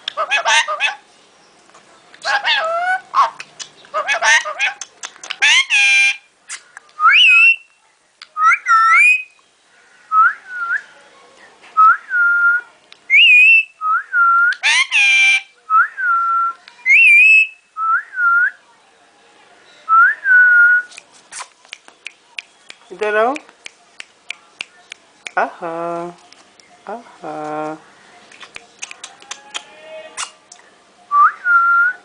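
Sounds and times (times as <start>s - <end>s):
parrot harsh squawks: 0.2s - 1.0s, 2.2s - 3.4s, 4.0s - 4.8s, 5.4s - 6.3s, 14.6s - 15.5s.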